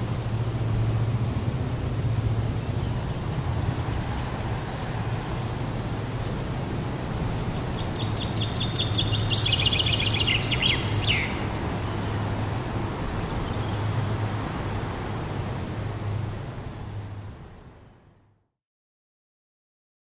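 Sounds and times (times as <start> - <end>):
low outdoor rumble: 0.0 - 18.2
songbird singing: 0.1 - 14.5.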